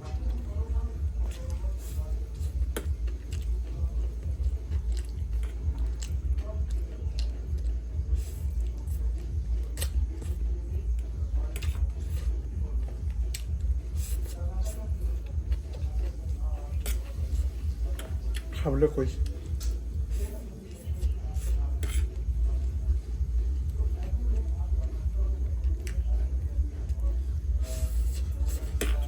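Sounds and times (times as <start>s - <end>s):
person chewing food: 0.0s - 18.6s, 19.2s - 29.0s
steady low hum: 0.0s - 29.0s
wet mouth clicks: 9.6s - 10.3s, 13.2s - 13.5s.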